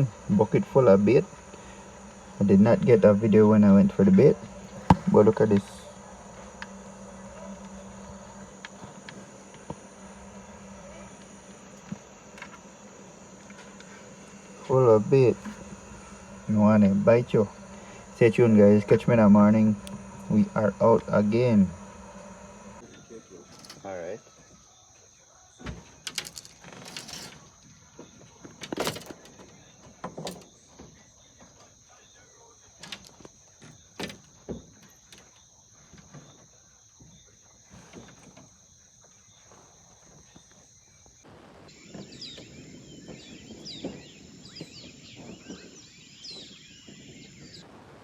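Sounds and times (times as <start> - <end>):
high insect buzz: 0.0 - 25.2, 25.8 - 47.7
birds chirping: 0.0 - 25.3, 37.2 - 47.7.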